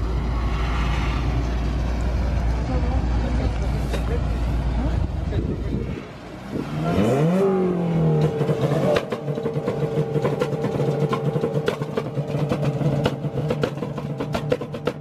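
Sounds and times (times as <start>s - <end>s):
car engine against rev limiter: 6.5s - 14.4s
exhaust pops and bangs: 8.1s - 15.0s.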